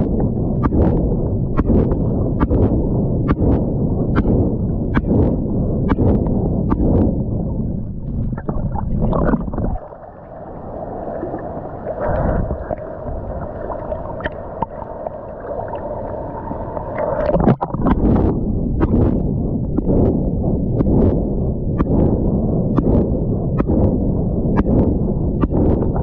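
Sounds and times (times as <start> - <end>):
water slaps: 0.6 - 7.2, 20.8 - 26.0
sea water sloshing and gurgling: 5.9 - 26.0.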